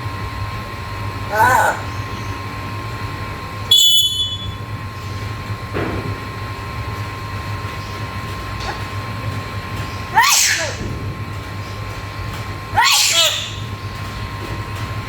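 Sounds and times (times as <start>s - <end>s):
steady background hum: 0.0s - 15.0s
parrot screeching: 1.3s - 2.0s, 10.1s - 10.8s, 12.7s - 13.7s.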